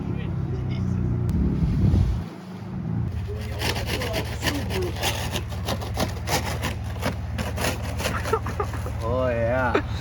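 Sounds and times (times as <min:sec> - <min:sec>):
scraping and crunching snow: 0:01.6 - 0:09.5.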